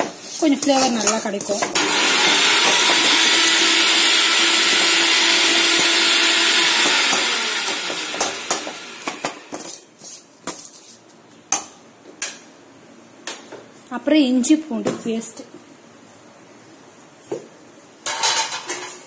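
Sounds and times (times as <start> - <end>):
spoon scraping a metal pan: 0.0 - 1.8.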